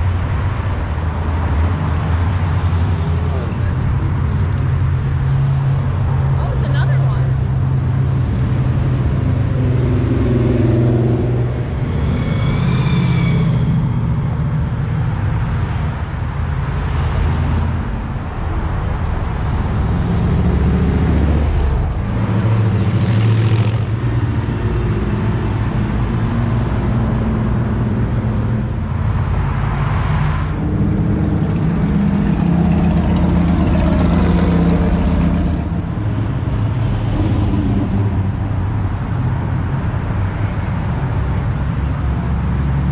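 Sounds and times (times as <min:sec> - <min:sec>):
vehicle engine revving while driving: 0:00.0 - 0:12.5, 0:13.8 - 0:42.9
wavering high tone: 0:10.8 - 0:15.1.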